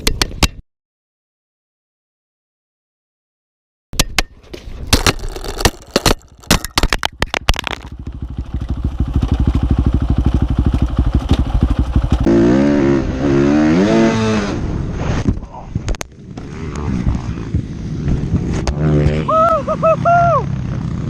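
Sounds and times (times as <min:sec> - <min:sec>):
dirt bike engine running: 0:05.0 - 0:13.8
engine knocking and clatter: 0:07.6 - 0:12.3
dirt bike engine revving: 0:07.9 - 0:14.9.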